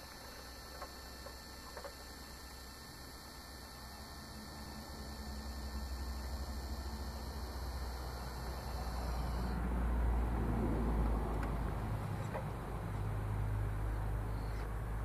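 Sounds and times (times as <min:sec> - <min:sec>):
electric hydraulic pump humming: 0:00.0 - 0:09.7.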